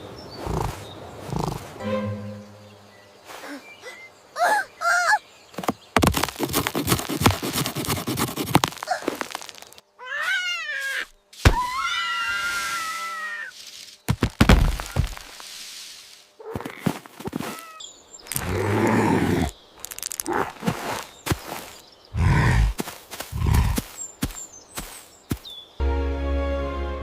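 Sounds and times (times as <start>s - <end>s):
clattering knocks and thuds: 14.1s - 15.2s.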